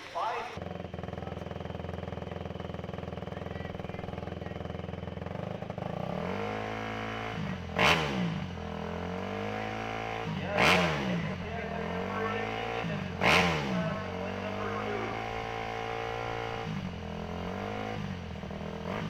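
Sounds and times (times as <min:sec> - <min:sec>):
motorcycle engine idling and revving: 0:00.0 - 0:19.0
loud sharp engine bursts: 0:05.8 - 0:19.0.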